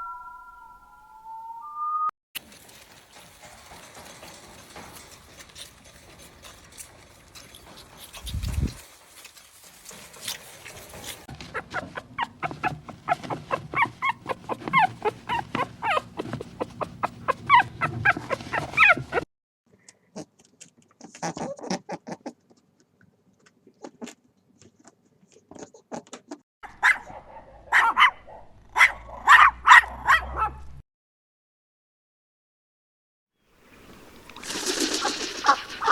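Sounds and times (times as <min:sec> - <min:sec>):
dogs barking and yipping: 0:11.3 - 0:19.3, 0:26.7 - 0:30.6, 0:35.0 - 0:35.9.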